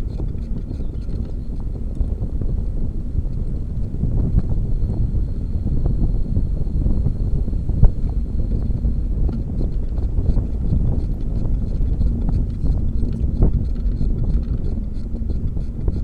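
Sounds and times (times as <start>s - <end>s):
small clicks and rattles: 0.0s - 2.4s, 7.8s - 16.0s
wind buffeting microphone: 0.0s - 16.0s.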